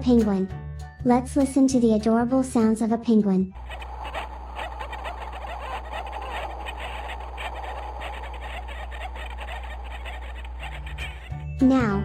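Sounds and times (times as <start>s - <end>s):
steady low hum: 3.6s - 11.3s
penguins calling: 3.6s - 11.4s.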